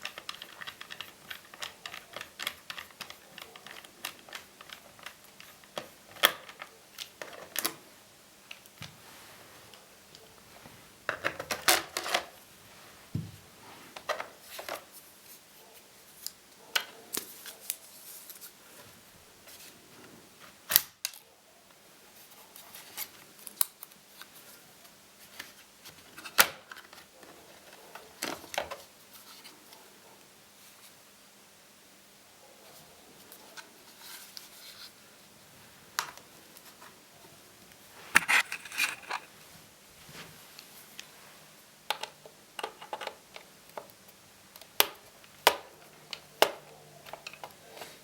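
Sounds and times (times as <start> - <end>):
laptop parts clicking and scraping: 0.0 - 7.7, 38.1 - 39.3.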